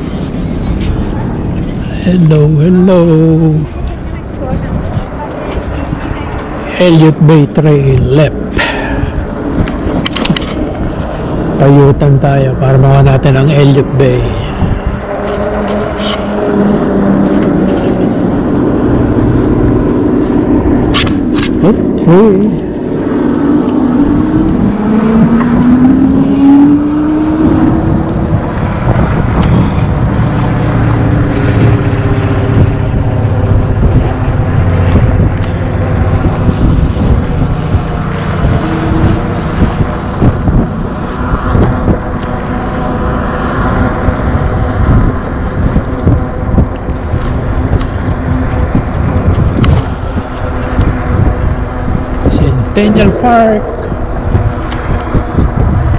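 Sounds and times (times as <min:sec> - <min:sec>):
wind rushing over microphone: 0:00.0 - 0:55.9
rising electric motor tone: 0:14.6 - 0:55.9.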